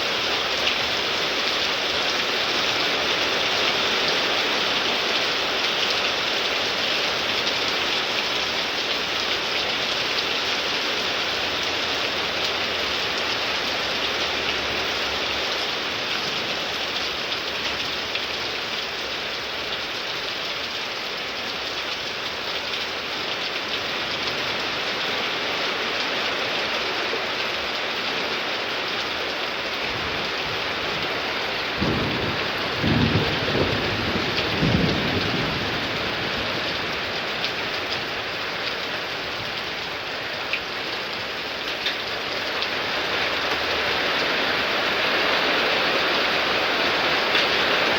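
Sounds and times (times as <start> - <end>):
heavy rain pouring: 0.0 - 47.9
thunder rumbling: 29.9 - 37.3.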